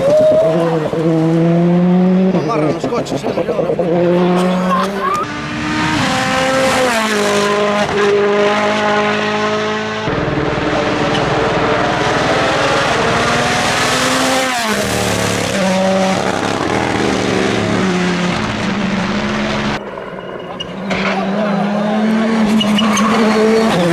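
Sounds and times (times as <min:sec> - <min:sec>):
rally car engine revving: 0:00.0 - 0:23.9
tyre noise: 0:02.2 - 0:05.4, 0:10.8 - 0:23.9.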